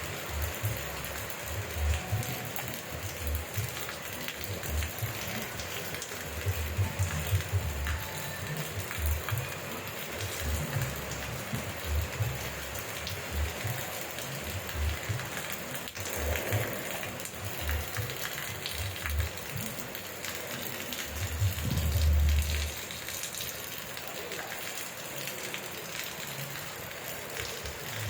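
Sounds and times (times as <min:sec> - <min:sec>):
rain falling: 0:00.0 - 0:28.0
low rumble: 0:21.4 - 0:22.7.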